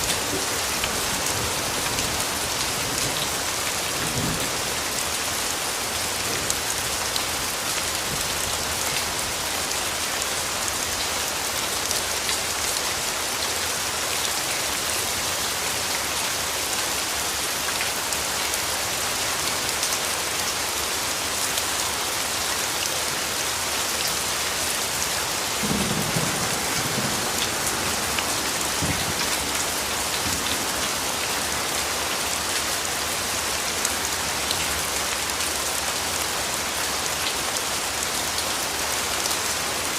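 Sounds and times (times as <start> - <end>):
steady rain falling: 0.0 - 39.9
distant thunder rumble: 25.5 - 30.5.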